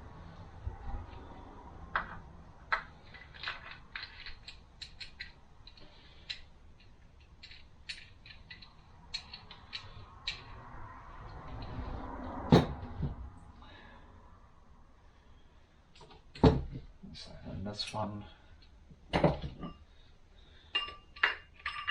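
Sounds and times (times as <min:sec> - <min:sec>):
metal parts clicking: 0:02.7 - 0:11.8, 0:20.7 - 0:21.9.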